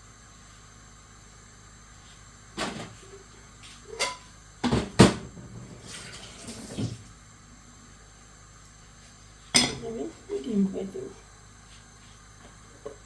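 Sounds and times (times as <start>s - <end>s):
pots and lids clattering: 9.6s - 9.8s.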